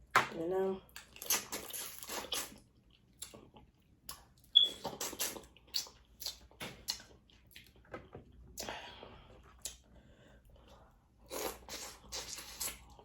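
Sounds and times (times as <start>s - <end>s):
wet smacking and sucking eating: 1.0s - 3.4s, 4.0s - 7.8s, 11.3s - 13.0s.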